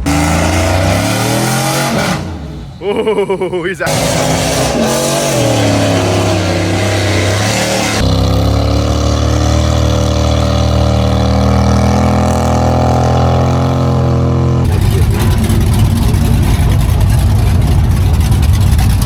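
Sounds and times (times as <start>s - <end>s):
truck engine running under load: 5.3s - 19.0s.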